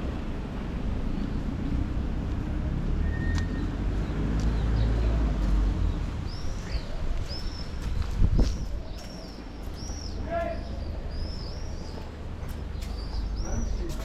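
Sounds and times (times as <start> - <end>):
bird chirping: 5.8 - 8.2, 8.8 - 14.0.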